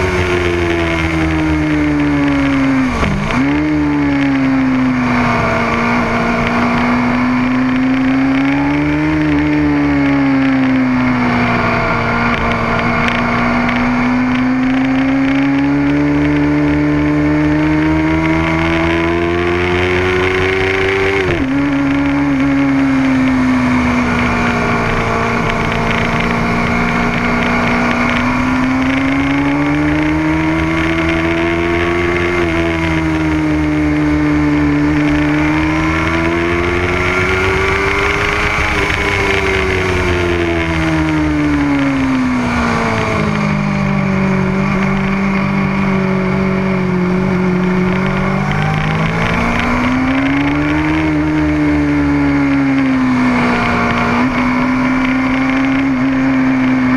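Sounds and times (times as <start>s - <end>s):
motorcycle engine running hard: 0.0s - 56.9s.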